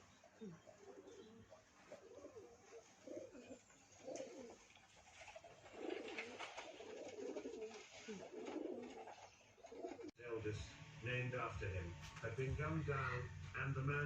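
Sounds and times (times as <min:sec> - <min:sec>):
pigeons cooing: 0:00.0 - 0:10.2.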